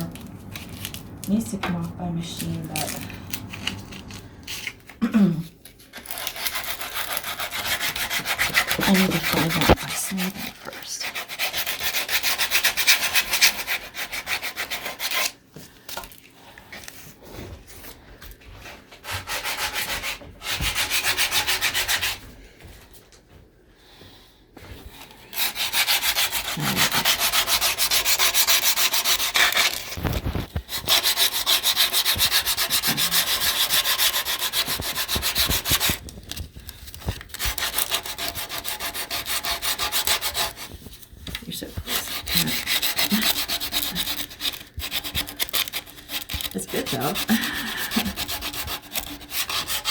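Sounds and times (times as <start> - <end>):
sandpaper rubbing on wood: 6.1 - 15.3, 19.0 - 22.2, 25.4 - 36.4, 37.3 - 40.8, 41.5 - 49.9.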